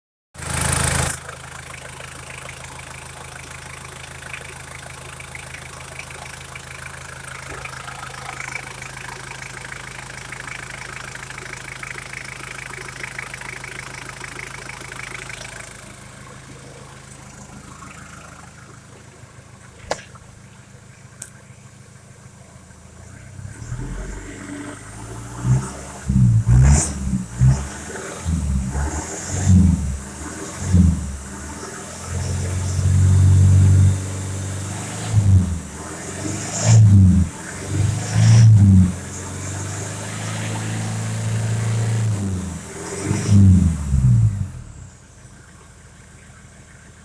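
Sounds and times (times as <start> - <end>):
diesel engine idling: 0.4 - 47.0
sharp click: 19.8 - 20.2.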